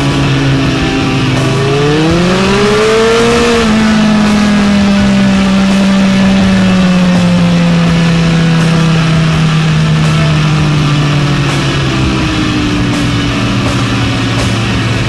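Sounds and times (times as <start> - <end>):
motorcycle engine revs falling: 0.0 - 15.0.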